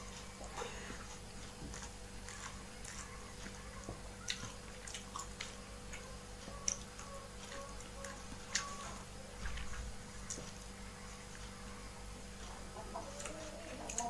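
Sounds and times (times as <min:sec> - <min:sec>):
wet chewing and mouth smacks: 0:04.2 - 0:06.0.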